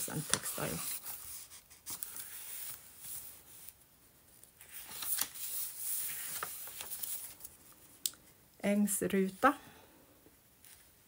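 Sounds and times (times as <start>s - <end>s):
paper rustling and crinkling: 0.0s - 8.0s.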